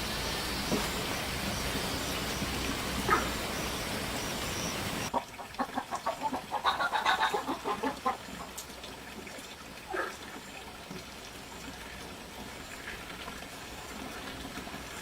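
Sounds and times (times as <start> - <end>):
steady hiss: 0.0 - 5.1
chickens clucking: 3.0 - 3.5, 5.0 - 8.4.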